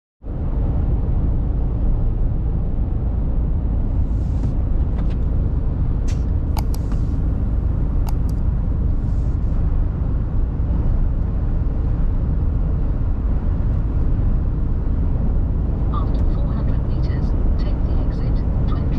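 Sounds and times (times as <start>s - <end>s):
diesel truck engine rumble: 0.2s - 18.9s
road noise: 0.2s - 18.9s
short sharp clicks: 6.1s - 7.0s.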